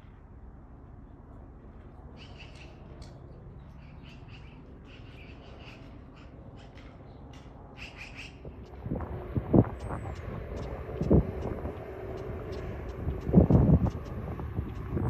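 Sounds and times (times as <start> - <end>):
low background rumble: 0.0 - 15.0
small birds calling: 2.2 - 8.8.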